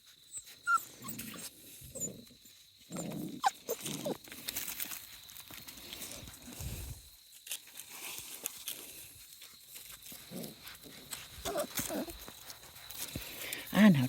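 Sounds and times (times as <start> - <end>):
puppies whimpering and yipping: 0.3 - 2.1, 3.0 - 4.2, 11.4 - 12.2
puppies grumbling: 0.5 - 4.4, 10.2 - 12.3.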